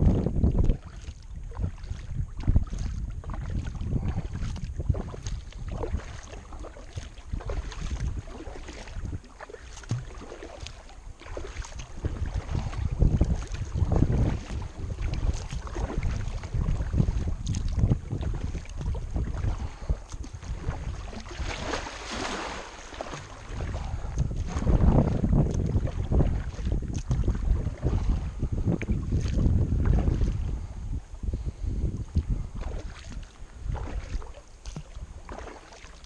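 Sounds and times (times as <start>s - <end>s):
wind buffeting microphone: 0.0s - 35.5s
paddle splashing in water: 0.0s - 36.0s.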